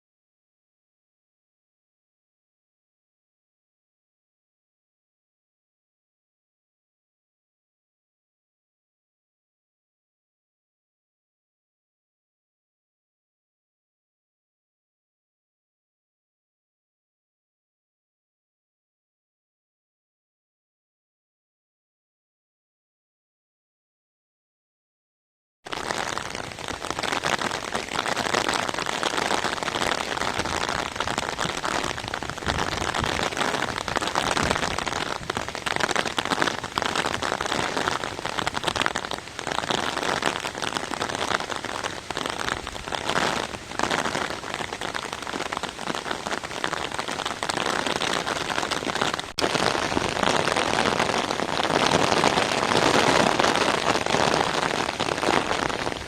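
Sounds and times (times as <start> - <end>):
rain pouring: 25.7 - 56.0.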